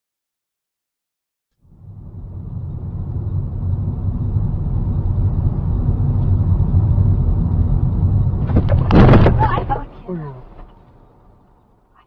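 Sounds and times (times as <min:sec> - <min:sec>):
car engine and road rumble: 0:01.6 - 0:12.0
loud crack: 0:08.4 - 0:11.0.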